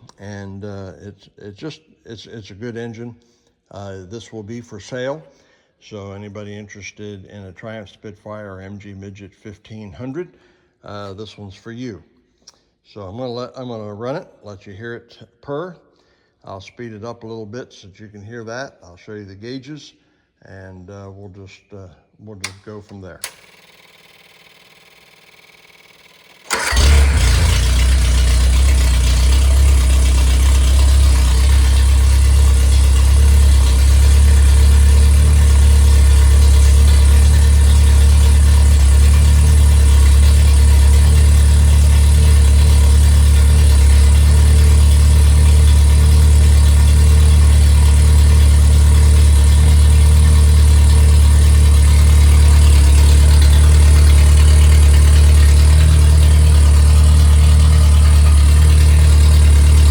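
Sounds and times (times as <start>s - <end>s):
car engine starting and idling: 23.2s - 59.9s.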